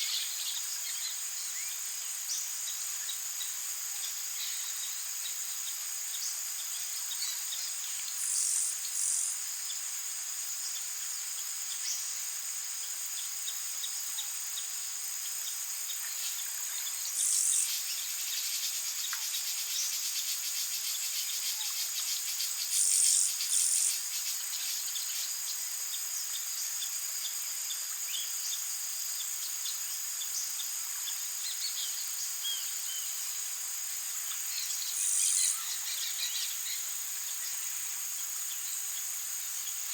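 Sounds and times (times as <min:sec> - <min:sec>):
insects trilling: 0:00.0 - 0:39.9
loud insect calls: 0:00.0 - 0:39.9
faint bird chirps: 0:34.5 - 0:37.6.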